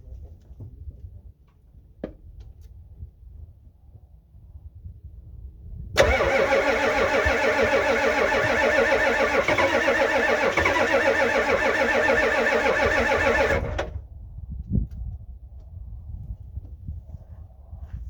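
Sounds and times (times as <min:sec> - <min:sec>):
diesel engine starter cranking: 0:06.0 - 0:14.0.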